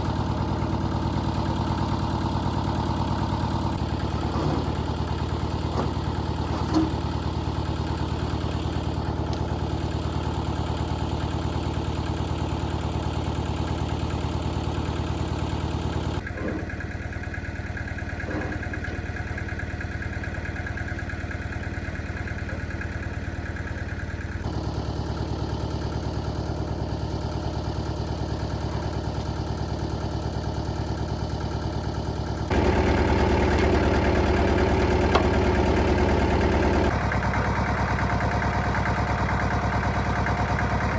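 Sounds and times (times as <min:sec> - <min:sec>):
vehicle engine running steadily: 0:00.0 - 0:40.9.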